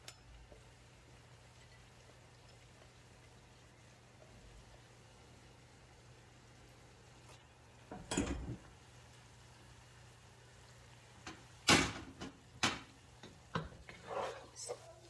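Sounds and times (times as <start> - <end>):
cookware knocking and clattering: 7.9 - 8.6, 11.3 - 13.9.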